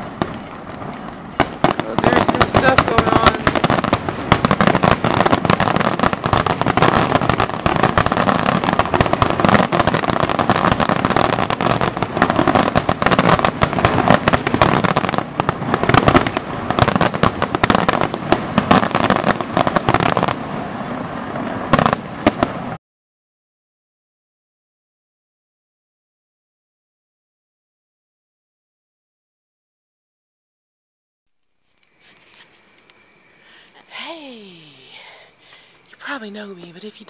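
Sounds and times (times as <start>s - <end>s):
fireworks bursting and crackling: 0.0s - 22.8s, 31.6s - 37.0s.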